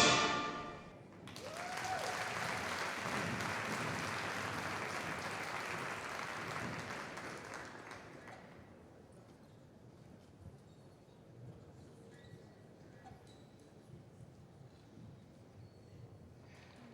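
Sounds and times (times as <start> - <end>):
music chord: 0.0 - 1.0
audience applause: 1.3 - 8.1.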